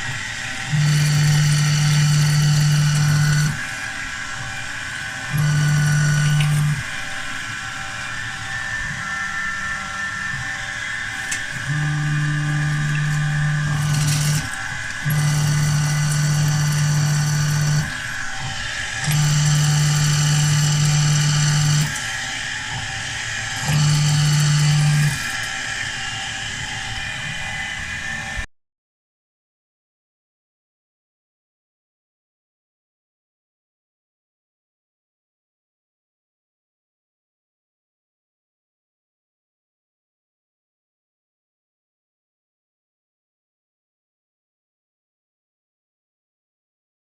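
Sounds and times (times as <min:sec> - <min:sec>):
machine motor hum with whine: 0:00.0 - 0:28.5.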